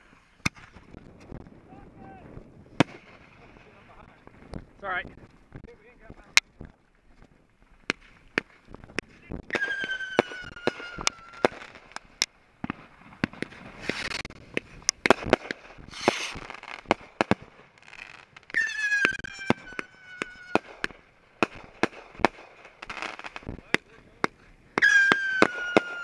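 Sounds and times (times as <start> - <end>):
firework bangs and pops: 0.0 - 26.0
whistling firework: 9.4 - 12.0, 12.6 - 23.4, 24.8 - 26.0
firework hissing bursts: 9.5 - 23.5.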